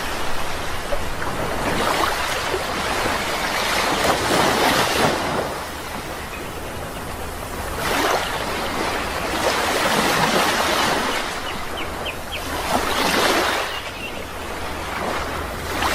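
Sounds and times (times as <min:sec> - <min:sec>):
sea waves washing ashore: 0:00.0 - 0:15.9
bird chirps: 0:13.6 - 0:14.3.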